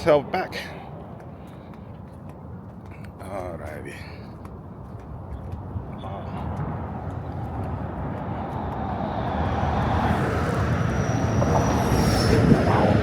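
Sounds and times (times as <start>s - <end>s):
vehicle rumbling past: 6.3s - 13.0s.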